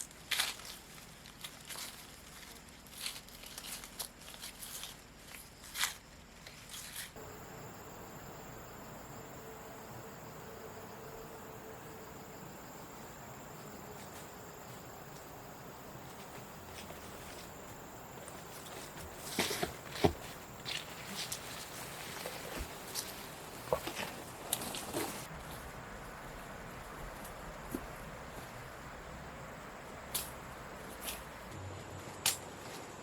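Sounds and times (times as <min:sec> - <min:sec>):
crunching footsteps: 0:00.0 - 0:33.0
high insect drone: 0:07.2 - 0:31.6.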